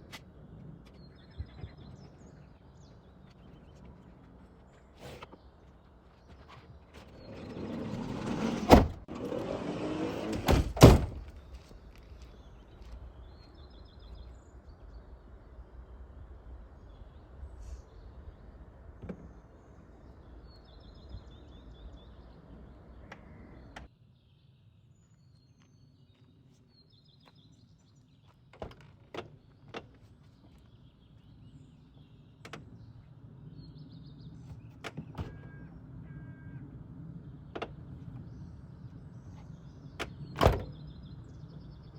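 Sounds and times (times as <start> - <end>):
sliding door rolling and shutting: 7.0 - 11.4, 36.6 - 41.3.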